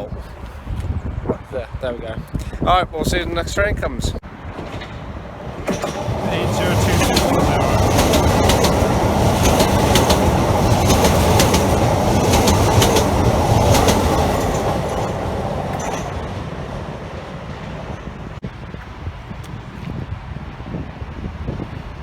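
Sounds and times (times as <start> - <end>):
train passing: 4.2 - 19.2
train wheels clicking over rail joints: 4.3 - 18.4.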